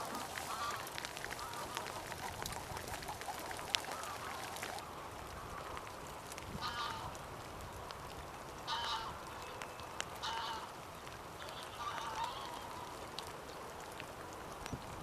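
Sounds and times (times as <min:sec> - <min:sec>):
waterfowl calling: 0:00.0 - 0:04.8, 0:06.6 - 0:07.2, 0:08.6 - 0:09.3, 0:10.2 - 0:10.7, 0:11.4 - 0:13.0.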